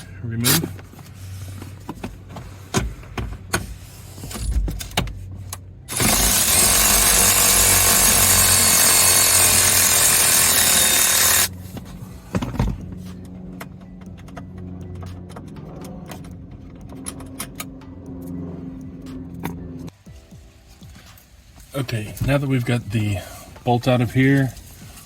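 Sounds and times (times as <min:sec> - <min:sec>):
power driver motor whine: 0:05.9 - 0:11.6.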